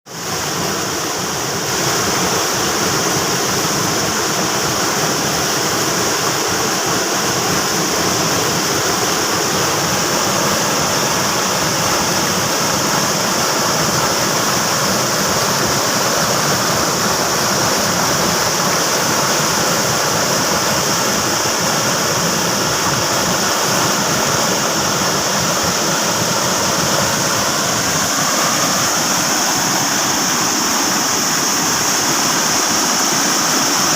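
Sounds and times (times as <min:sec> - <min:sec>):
floodwater rushing: 0:00.1 - 0:33.9.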